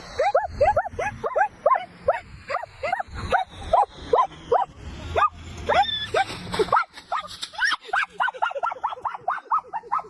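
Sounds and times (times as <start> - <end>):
animal yelping calls: 0.2 - 10.0.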